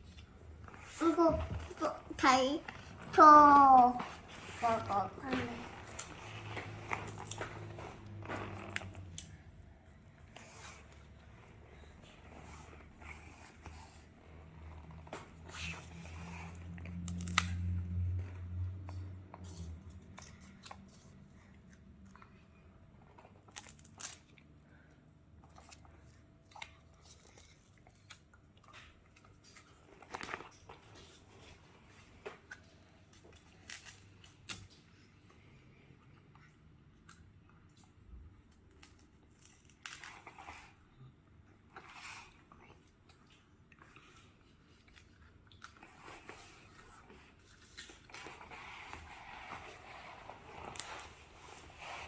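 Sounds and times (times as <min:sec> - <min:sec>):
chewing: 0:25.4 - 0:41.0, 0:41.7 - 0:49.5.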